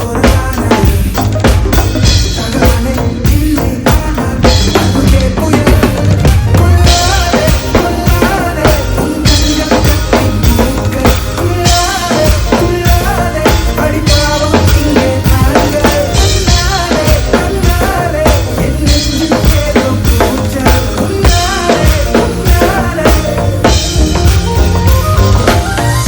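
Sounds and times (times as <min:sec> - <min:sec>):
live band playing pop song: 0:00.0 - 0:26.0.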